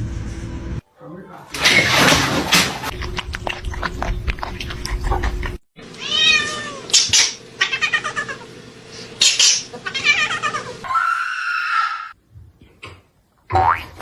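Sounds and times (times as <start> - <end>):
cat meowing and yowling: 6.0 - 6.9.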